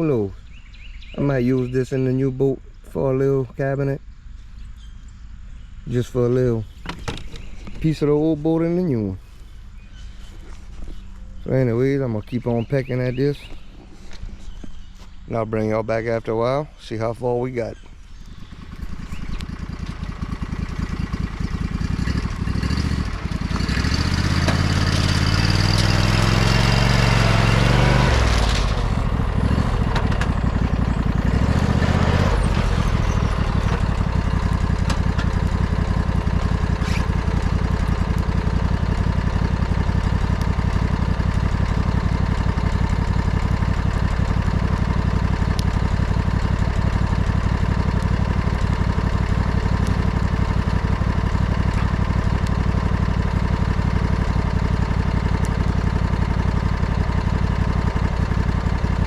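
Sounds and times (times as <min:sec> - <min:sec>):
old lawnmower engine revving: 0:18.4 - 0:59.0.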